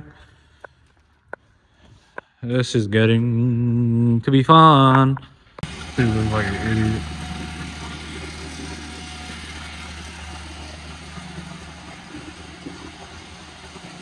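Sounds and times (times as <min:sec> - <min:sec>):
low mechanical drone: 0:05.6 - 0:14.0.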